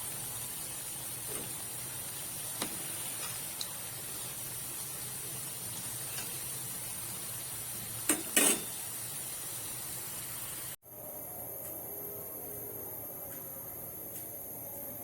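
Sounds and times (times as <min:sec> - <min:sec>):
food sizzling in hot oil: 0:00.0 - 0:10.8.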